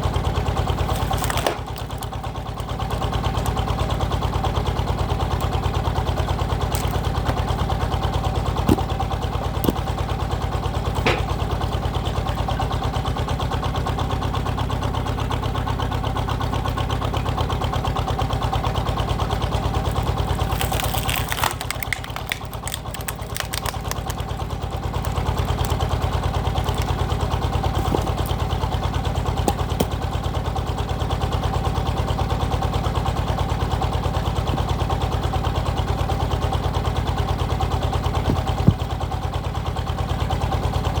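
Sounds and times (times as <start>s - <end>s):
diesel engine idling: 0.0s - 41.0s
sharp cracks: 0.9s - 3.7s, 19.8s - 28.4s.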